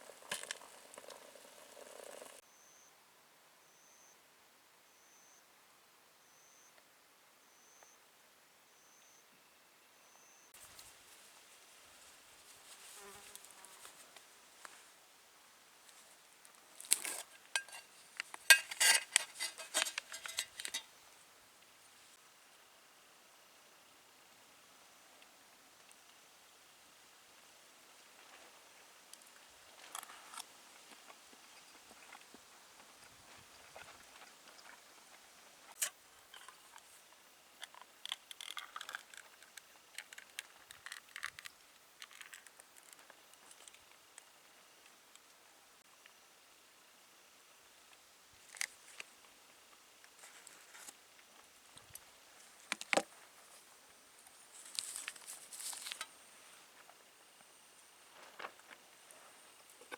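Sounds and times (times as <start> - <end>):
small irregular clicks and crackles: 0.0 - 2.4, 15.8 - 21.0, 25.1 - 46.2, 47.8 - 59.9
tableware clinking and knocking: 17.6 - 17.9, 18.5 - 20.9.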